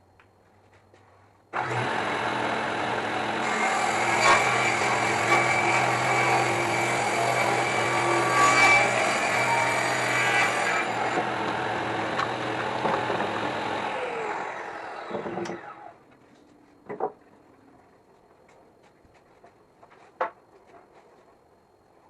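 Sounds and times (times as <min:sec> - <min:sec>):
electric saw cutting wood: 0:01.6 - 0:16.0.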